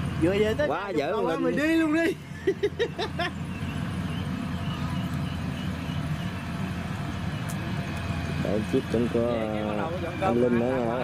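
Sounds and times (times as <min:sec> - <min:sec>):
harvester engine droning: 0:00.0 - 0:11.0.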